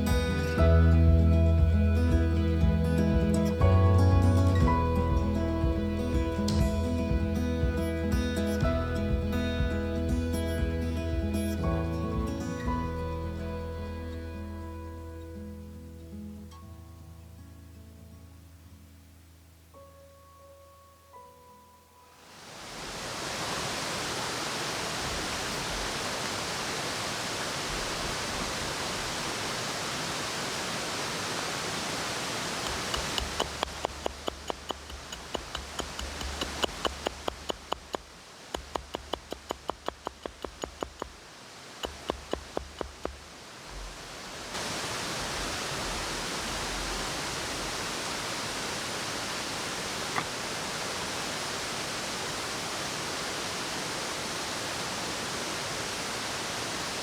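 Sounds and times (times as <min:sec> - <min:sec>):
sharp knocks: 0:32.7 - 0:41.2, 0:41.8 - 0:43.2.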